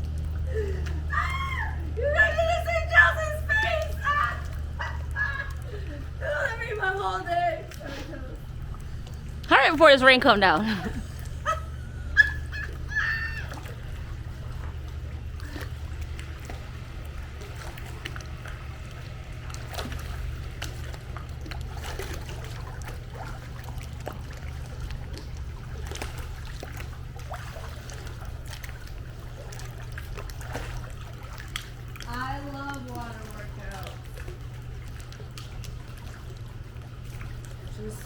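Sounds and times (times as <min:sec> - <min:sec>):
pool water splashing: 0:00.0 - 0:38.0.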